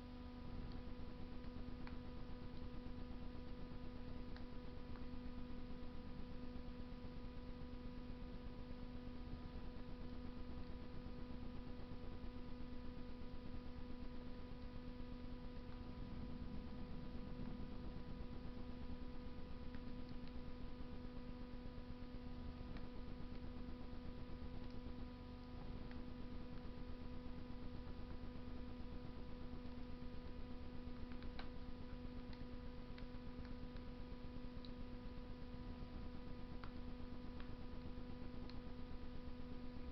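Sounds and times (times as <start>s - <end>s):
electrical hum: 0.0s - 39.9s
wood fire crackling: 12.9s - 27.0s, 27.8s - 34.8s.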